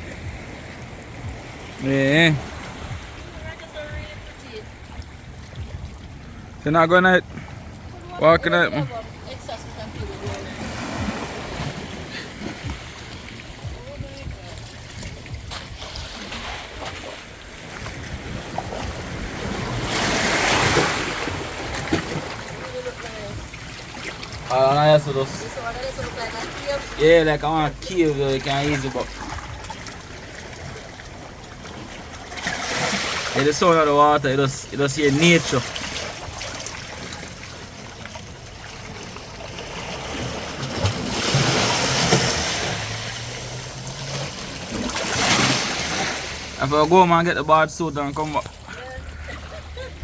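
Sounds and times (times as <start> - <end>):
sea waves washing in: 0.0 - 50.0
wind on microphone: 9.1 - 22.6.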